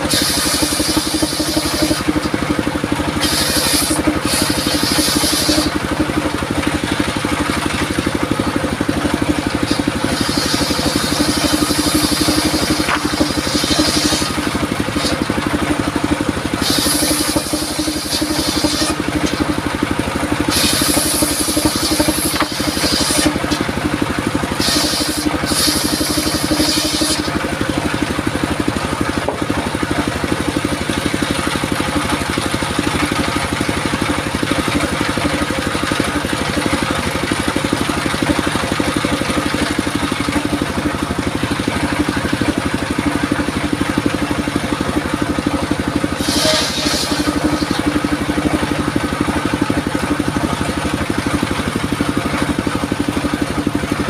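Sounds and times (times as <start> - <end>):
saw blade cutting wood: 0.0 - 53.8
circular saw running: 0.0 - 54.0.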